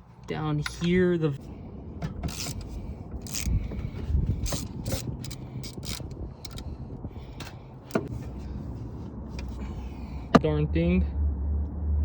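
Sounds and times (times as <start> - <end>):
low rumble: 1.3 - 12.0
hand ratchet clicking: 2.2 - 3.6, 4.4 - 6.7.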